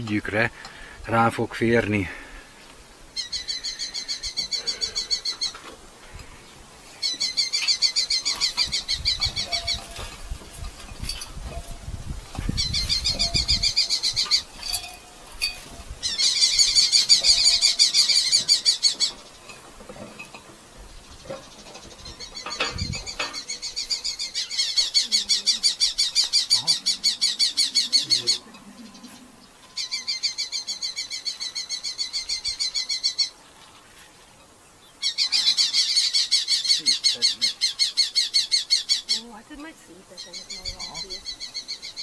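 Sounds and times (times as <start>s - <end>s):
falcon shrill kee calls: 7.0s - 10.2s, 12.6s - 14.5s, 16.0s - 19.2s.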